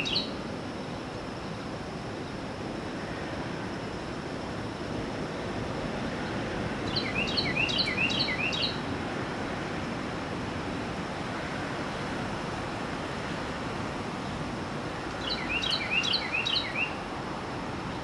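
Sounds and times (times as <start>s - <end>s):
bird chirping: 0.0s - 0.4s, 6.8s - 8.8s, 15.2s - 17.0s.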